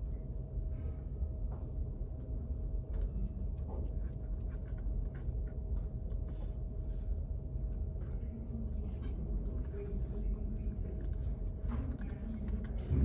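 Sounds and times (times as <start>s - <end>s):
ventilation hum: 0.0s - 13.0s
light scratches and clicks: 2.9s - 12.9s.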